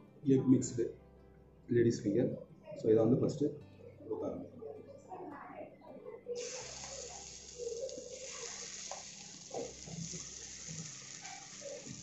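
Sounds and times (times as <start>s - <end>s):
egg batter sizzling in a pan: 6.4s - 12.0s.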